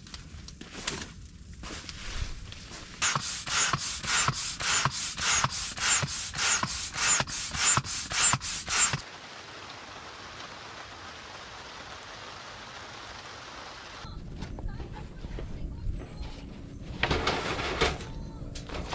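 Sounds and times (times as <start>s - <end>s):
steady even hiss: 2.9s - 14.1s
rhythmic scraping strokes: 3.0s - 9.0s.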